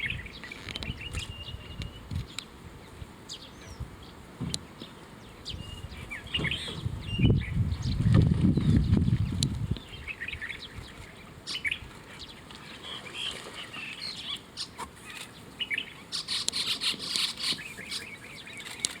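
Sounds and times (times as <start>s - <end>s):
birds chirping: 0.0s - 19.0s
rustling hiss: 9.4s - 19.0s.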